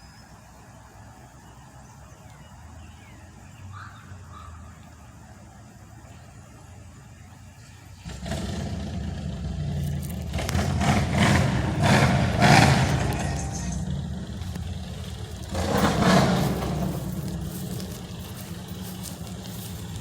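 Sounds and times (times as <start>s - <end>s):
car engine revving: 8.0s - 20.0s.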